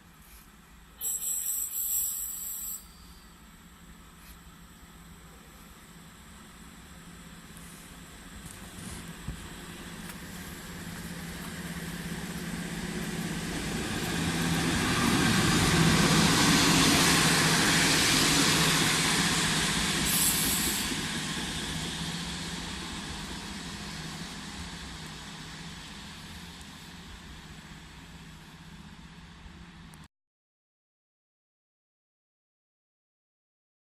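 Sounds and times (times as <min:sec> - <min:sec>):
train passing: 0:00.1 - 0:30.0
brief high hiss: 0:00.2 - 0:03.4, 0:20.0 - 0:20.9.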